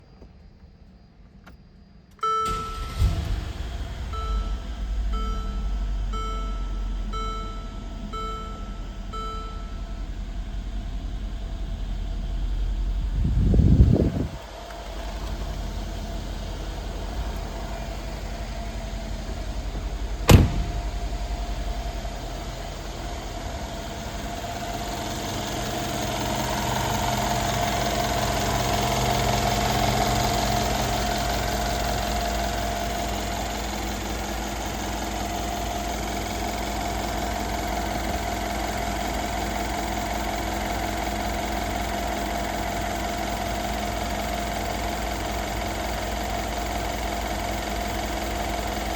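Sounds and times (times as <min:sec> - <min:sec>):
car engine starting and idling: 0:00.9 - 0:48.9
warning chime: 0:04.2 - 0:10.1.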